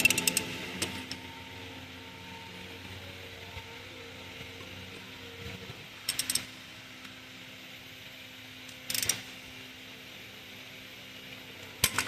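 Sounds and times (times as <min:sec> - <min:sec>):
faint steady hum: 0:00.0 - 0:12.0
ratchet wrench clicking: 0:06.1 - 0:06.5, 0:08.9 - 0:09.2.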